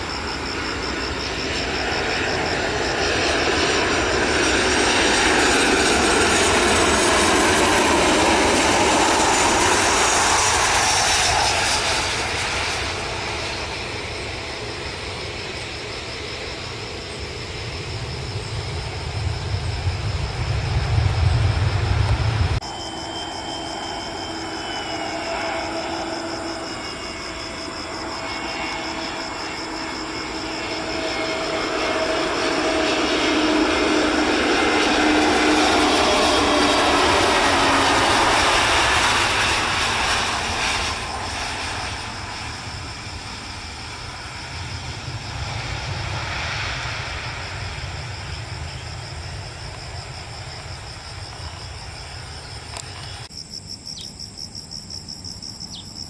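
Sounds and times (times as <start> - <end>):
crickets chirping: 0.0 - 56.0
jet airliner passing: 0.0 - 56.0.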